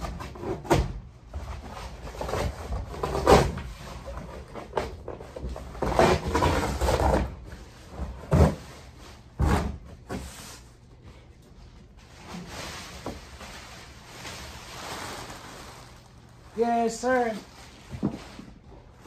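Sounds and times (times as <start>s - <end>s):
packaging rustling: 12.2s - 18.6s.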